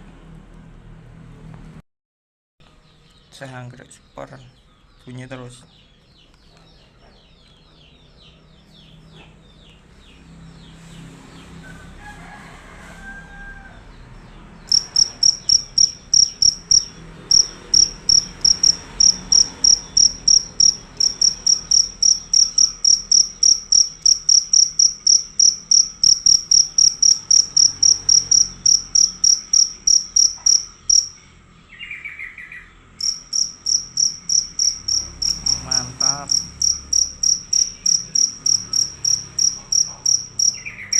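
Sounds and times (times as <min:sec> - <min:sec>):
cricket chirping: 0:14.7 - 0:31.3, 0:33.0 - 0:40.9.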